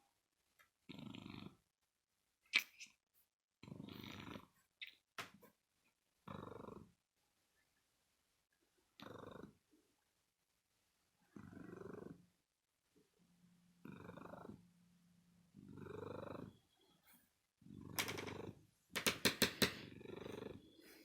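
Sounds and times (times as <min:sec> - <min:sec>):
cat purring: 0:00.8 - 0:01.7, 0:03.6 - 0:04.7, 0:06.2 - 0:07.0, 0:09.0 - 0:09.8, 0:11.2 - 0:12.4, 0:13.7 - 0:14.7, 0:15.4 - 0:16.8, 0:17.6 - 0:18.8, 0:19.6 - 0:21.0.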